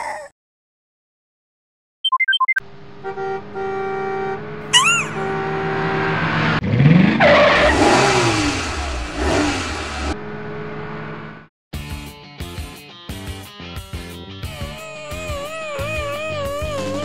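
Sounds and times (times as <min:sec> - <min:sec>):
cartoon toy car engine revving: 0:04.6 - 0:06.0, 0:06.6 - 0:10.2, 0:14.5 - 0:17.0
wobbling whistle effect: 0:04.7 - 0:05.3.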